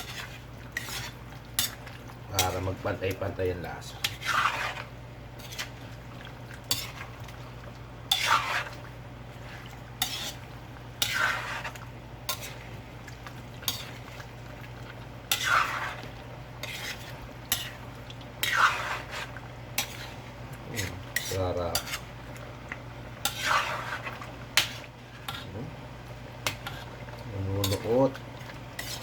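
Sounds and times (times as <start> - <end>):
metal utensil scraping pot: 0.0 - 1.8, 4.0 - 5.8, 8.1 - 8.8, 10.0 - 10.4, 11.0 - 12.6, 15.3 - 17.8, 18.4 - 22.1, 23.2 - 25.5, 26.4 - 28.2, 28.8 - 29.0.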